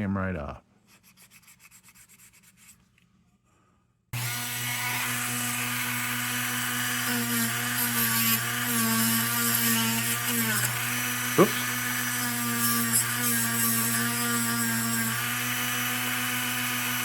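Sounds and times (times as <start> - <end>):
hand rubbing on metal: 0.8 - 2.9
power tool humming whine: 4.2 - 17.0.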